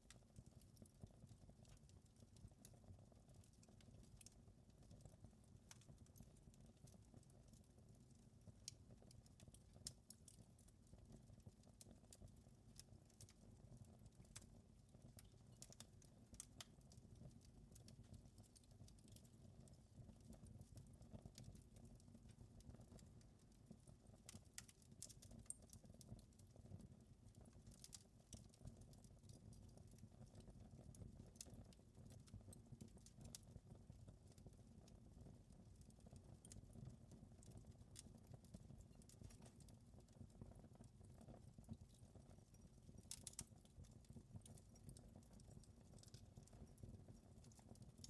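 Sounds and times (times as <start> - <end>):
wood fire crackling: 0.1 - 48.0.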